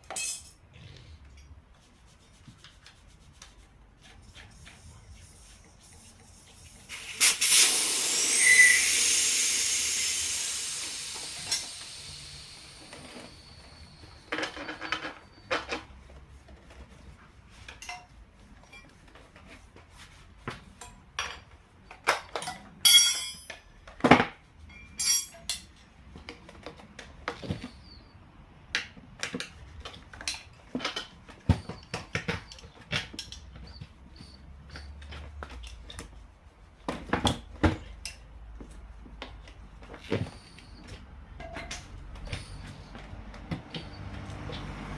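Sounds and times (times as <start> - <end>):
metallic clinks of hand tools: 0.0 - 0.6, 22.8 - 23.6, 24.8 - 25.6
air hissing out of tyre: 5.2 - 14.3.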